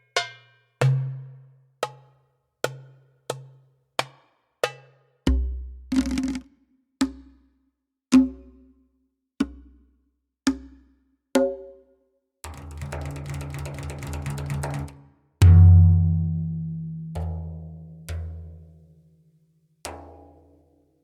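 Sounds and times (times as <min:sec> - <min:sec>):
deep drum strikes: 0:15.4 - 0:16.9.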